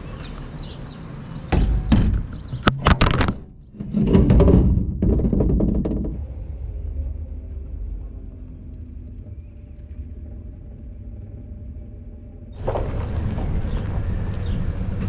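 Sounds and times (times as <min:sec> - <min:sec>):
sharp knocks and clanks: 0:01.5 - 0:06.2
dense clattering rushing noise: 0:01.5 - 0:15.0.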